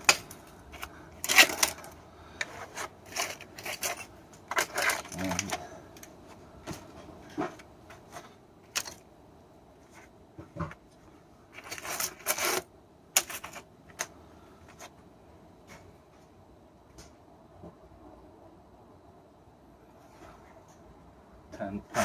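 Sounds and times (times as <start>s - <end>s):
scrap metal clinking and knocking: 0.0s - 6.1s.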